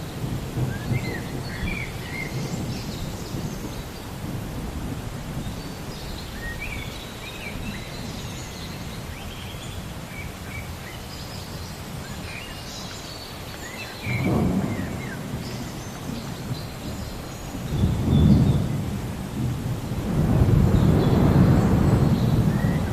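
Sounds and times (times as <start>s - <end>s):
thunder rumbling: 0.0s - 8.9s, 14.0s - 22.9s
steady rain: 0.0s - 22.9s
birds chirping: 5.4s - 19.0s, 19.8s - 22.9s.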